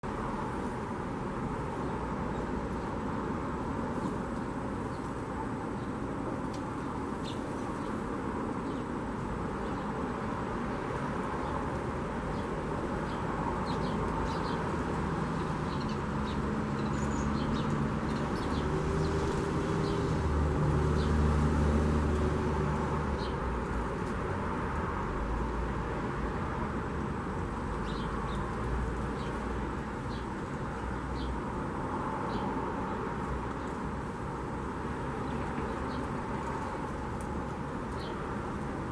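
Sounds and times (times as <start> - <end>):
background traffic hum: 0.0 - 38.9
motor vehicle passing: 15.2 - 23.3.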